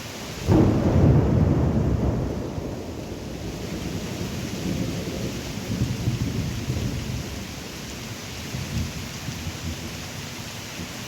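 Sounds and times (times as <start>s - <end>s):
rain hissing: 0.0s - 11.0s
thunder rumbling: 0.4s - 7.8s.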